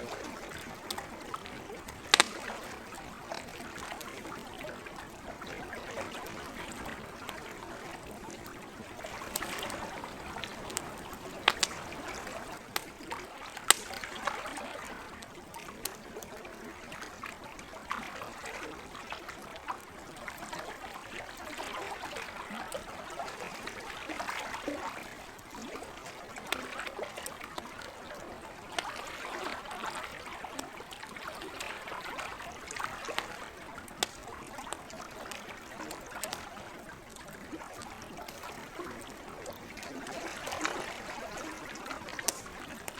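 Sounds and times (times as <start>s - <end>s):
campfire crackling and popping: 0.0s - 17.6s, 18.8s - 42.9s
lake water trickling: 0.0s - 42.9s.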